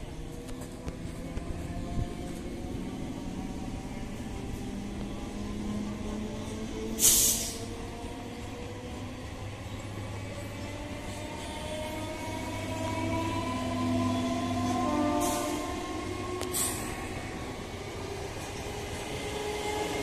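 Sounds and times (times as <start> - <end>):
wheels rumbling on rail: 0.0 - 20.0
hiss of air: 7.0 - 7.7, 16.5 - 17.0.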